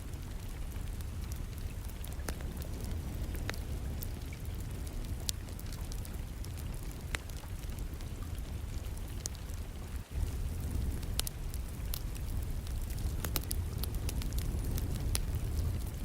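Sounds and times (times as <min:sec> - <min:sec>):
wood fire crackling and popping: 0:00.0 - 0:16.0
rain hissing: 0:09.9 - 0:16.0
low rumble: 0:10.1 - 0:16.0.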